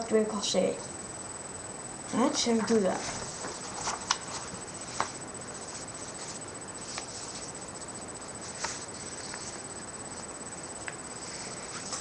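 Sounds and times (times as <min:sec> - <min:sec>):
steady background hiss: 0:00.0 - 0:12.0
paper crinkling: 0:02.9 - 0:10.2.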